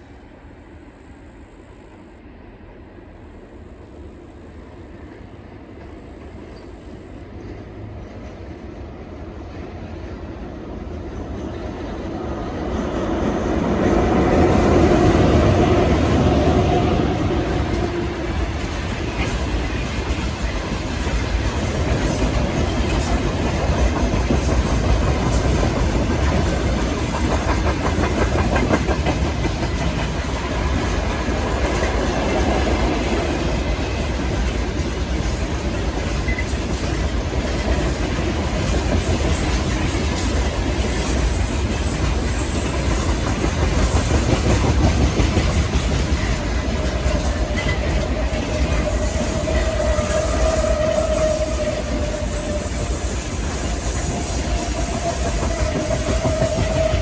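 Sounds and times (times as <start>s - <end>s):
freight train wheels clattering: 5.7s - 57.0s.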